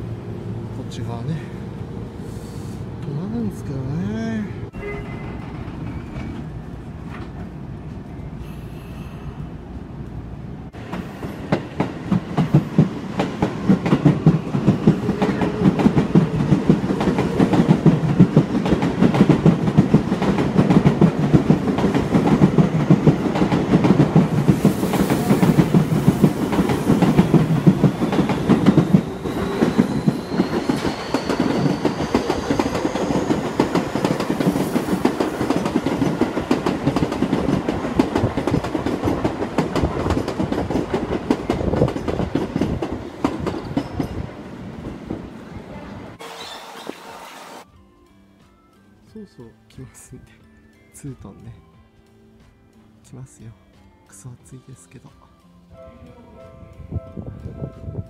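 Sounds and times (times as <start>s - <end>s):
train wheels clattering: 10.7s - 45.1s.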